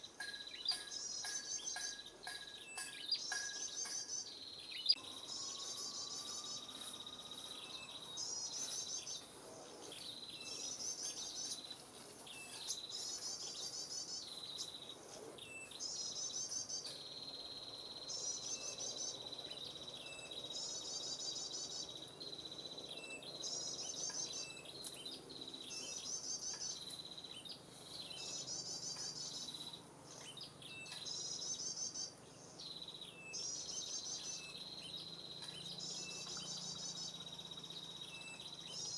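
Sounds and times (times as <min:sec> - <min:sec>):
steady high-pitched whine: 0:04.9 - 0:10.0.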